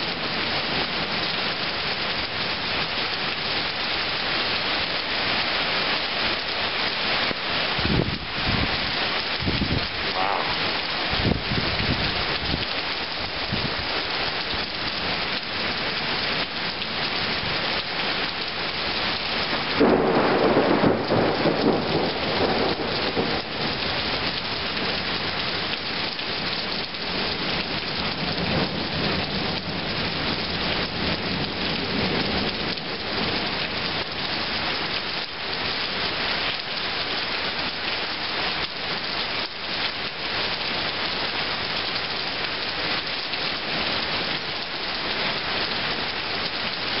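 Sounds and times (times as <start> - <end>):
heavy rain pouring: 0.0 - 47.0
thunder rumbling: 19.6 - 23.8.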